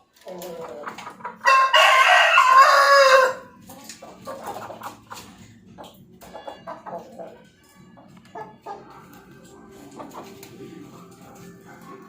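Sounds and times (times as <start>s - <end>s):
rooster crowing: 1.4s - 3.5s.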